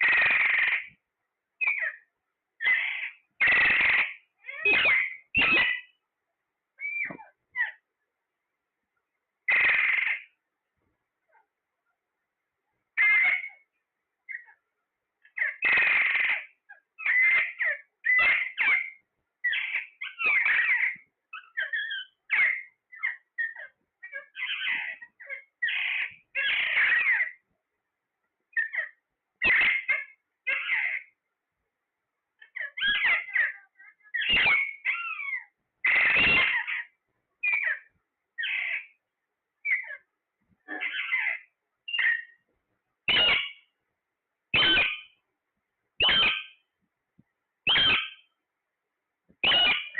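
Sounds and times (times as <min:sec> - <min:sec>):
parrot harsh screech: 0:00.0 - 0:00.9, 0:02.6 - 0:05.9, 0:09.5 - 0:10.2, 0:15.4 - 0:20.9, 0:29.4 - 0:31.1, 0:34.2 - 0:36.9, 0:43.1 - 0:43.6, 0:44.6 - 0:45.1, 0:46.0 - 0:46.5, 0:47.7 - 0:48.2, 0:49.4 - 0:49.9
parrot calling: 0:00.0 - 0:01.0, 0:01.6 - 0:06.0, 0:06.8 - 0:07.8, 0:09.5 - 0:10.4, 0:13.0 - 0:13.7, 0:14.3 - 0:14.6, 0:15.2 - 0:27.4, 0:28.5 - 0:31.2, 0:32.4 - 0:39.0, 0:39.6 - 0:42.4, 0:43.1 - 0:43.7, 0:44.5 - 0:45.2, 0:46.0 - 0:46.7, 0:47.6 - 0:48.3, 0:49.4 - 0:49.9
parrot squawks and whistles: 0:02.6 - 0:05.9, 0:06.8 - 0:07.8, 0:28.6 - 0:31.1, 0:32.6 - 0:38.9, 0:40.7 - 0:42.3, 0:43.1 - 0:43.6, 0:44.6 - 0:45.2, 0:46.0 - 0:46.6, 0:47.7 - 0:48.3, 0:49.4 - 0:49.9.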